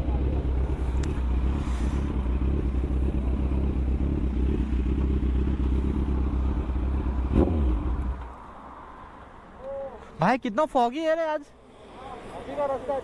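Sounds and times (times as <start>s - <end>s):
motorcycle engine throbbing: 0.0s - 8.2s.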